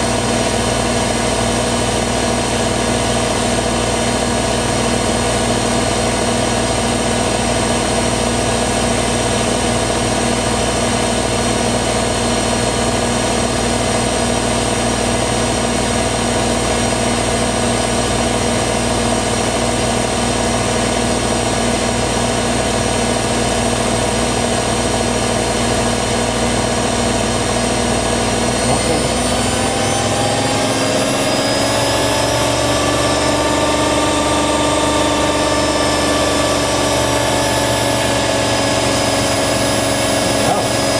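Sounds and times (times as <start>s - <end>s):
washer dryer motor whine: 0.0s - 40.9s
low hum: 27.8s - 40.9s.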